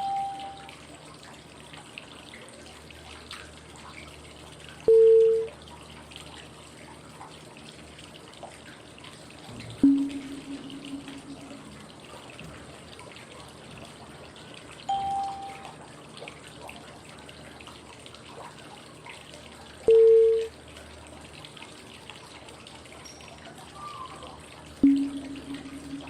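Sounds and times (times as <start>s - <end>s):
pitched cue tones: 0.0s - 0.7s, 9.8s - 11.9s, 14.9s - 15.7s, 24.8s - 26.0s
flowing water white noise: 0.0s - 1.1s, 9.5s - 12.1s, 14.8s - 15.9s, 24.1s - 26.0s.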